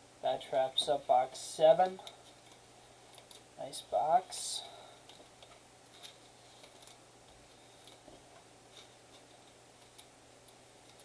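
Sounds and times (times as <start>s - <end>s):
cards and packaging rustling: 5.1s - 10.1s.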